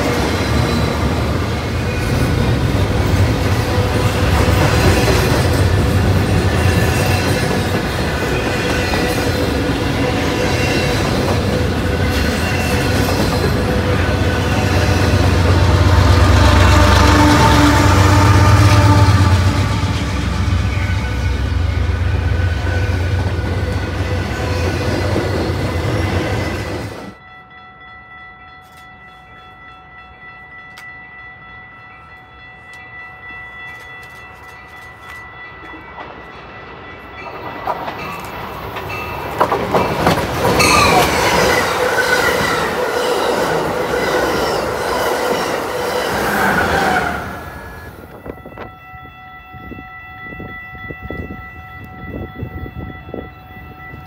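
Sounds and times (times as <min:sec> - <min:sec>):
train wheels squealing: 0:00.0 - 0:02.5, 0:40.5 - 0:48.0
train passing: 0:00.0 - 0:54.0.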